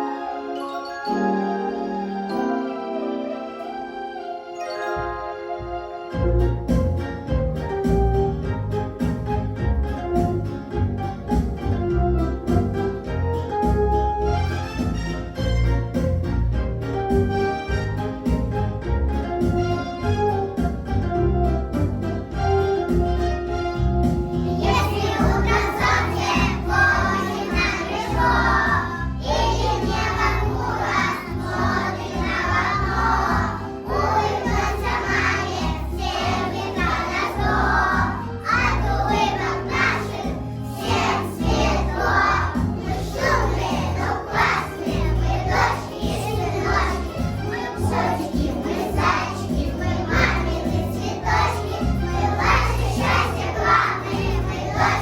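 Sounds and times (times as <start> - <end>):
children's choir singing: 0.0 - 6.1, 24.4 - 55.0
musical accompaniment with bass line: 3.6 - 55.0.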